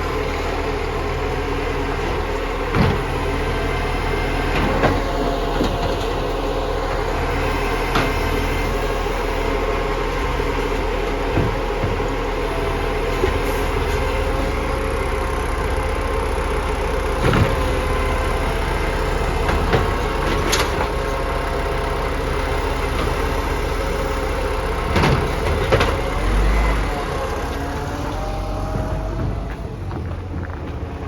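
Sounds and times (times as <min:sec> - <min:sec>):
garbage truck engine running: 0:00.0 - 0:31.0
knocks and clanks: 0:02.6 - 0:03.2, 0:11.1 - 0:12.4, 0:17.2 - 0:18.1, 0:24.7 - 0:31.0.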